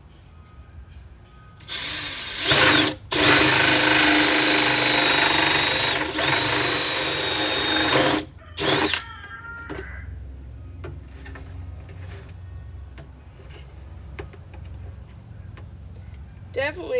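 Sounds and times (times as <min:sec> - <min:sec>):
power drill boring plastic: 0:01.6 - 0:09.0.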